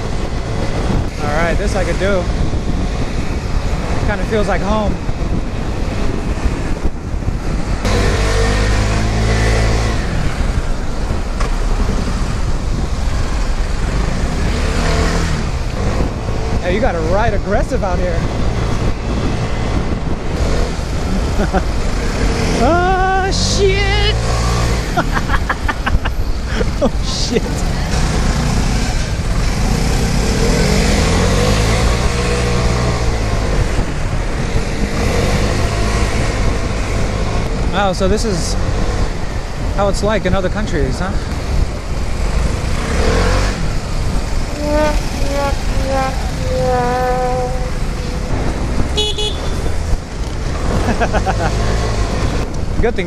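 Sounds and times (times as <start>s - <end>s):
traffic noise: 0.0s - 53.0s
wind and road noise: 0.0s - 53.0s
scooter engine running: 48.9s - 49.7s.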